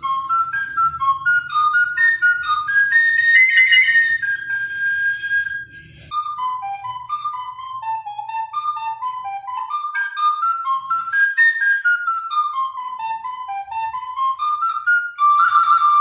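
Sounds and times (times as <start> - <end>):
solo recorder playing a tune: 0.0 - 16.0.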